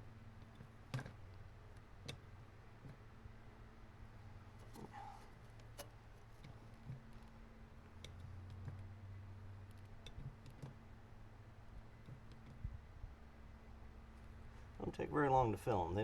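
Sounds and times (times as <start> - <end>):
faint clicks and light knocks: 0.4 - 3.0, 8.0 - 8.9, 9.6 - 10.8, 12.0 - 12.8.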